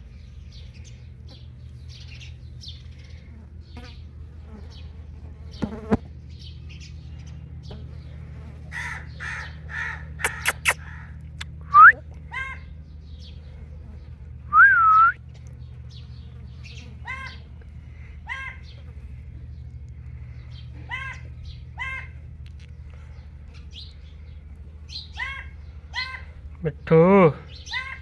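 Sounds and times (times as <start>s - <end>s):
steady low hum: 0.0s - 28.0s
parrot calling and whistling: 10.2s - 11.1s, 11.7s - 12.6s.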